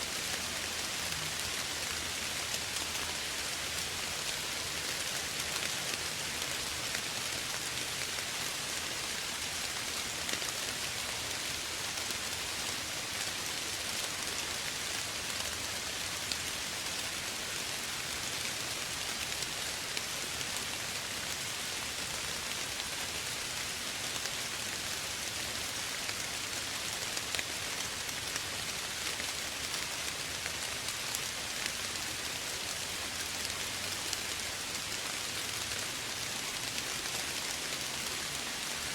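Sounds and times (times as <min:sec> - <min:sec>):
soft rain hissing: 0:00.0 - 0:38.9
faint raindrop ticks: 0:25.7 - 0:38.9.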